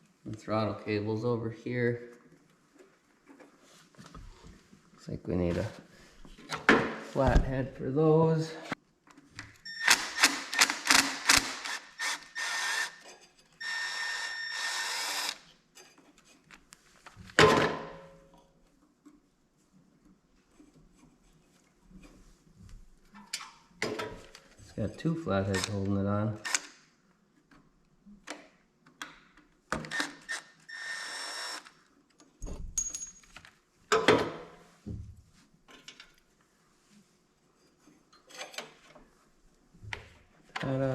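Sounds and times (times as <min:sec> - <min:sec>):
power driver whirring: 0:09.8 - 0:13.0, 0:13.6 - 0:15.4
metal clatter of tools: 0:32.7 - 0:34.2, 0:38.1 - 0:39.0.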